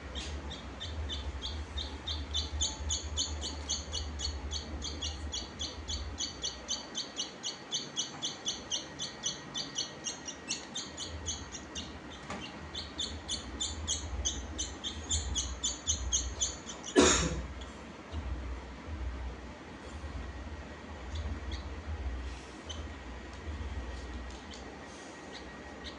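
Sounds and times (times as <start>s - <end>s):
small bird chirping rapidly: 0.0s - 17.0s, 21.1s - 21.8s, 25.3s - 25.9s.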